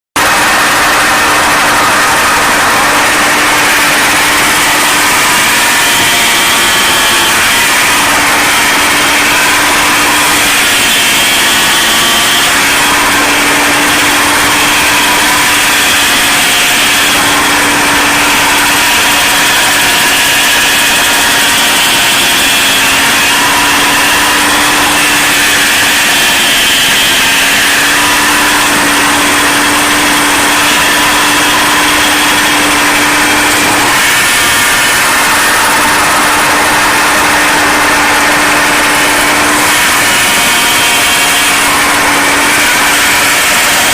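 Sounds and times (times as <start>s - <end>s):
stump grinder: 0.1s - 43.9s
tractor engine running: 0.2s - 43.9s.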